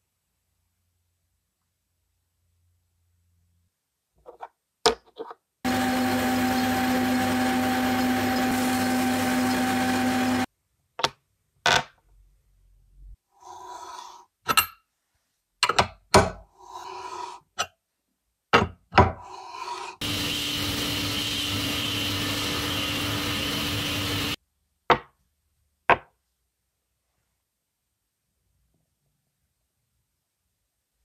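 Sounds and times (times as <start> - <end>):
power tool motor running: 5.7 - 10.5, 20.0 - 24.4.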